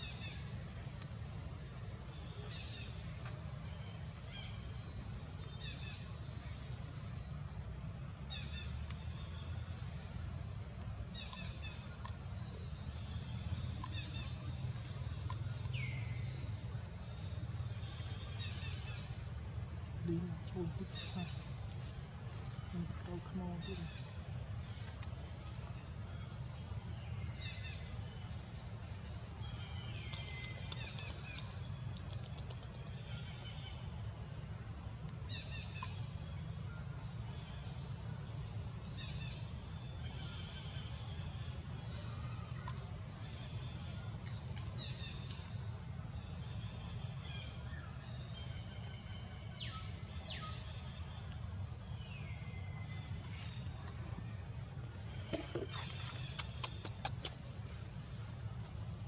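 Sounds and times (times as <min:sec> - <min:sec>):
steady low rumble: 0:51.0 - 0:59.0
baby monkey squealing: 0:55.7 - 0:57.4
sharp ticks: 0:56.3 - 0:57.4.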